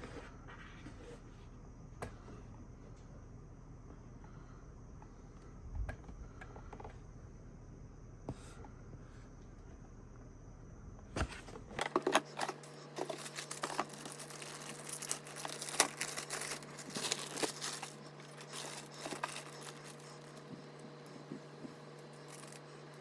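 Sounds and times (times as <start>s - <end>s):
plastic packaging crinkling: 11.8s - 21.2s, 21.8s - 23.0s.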